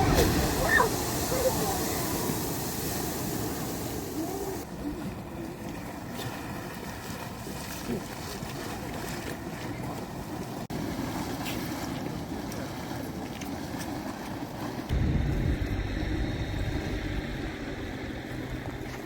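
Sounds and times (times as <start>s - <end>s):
geyser erupting whoosh: 0.0s - 4.7s
wind noise on microphone: 14.9s - 17.9s.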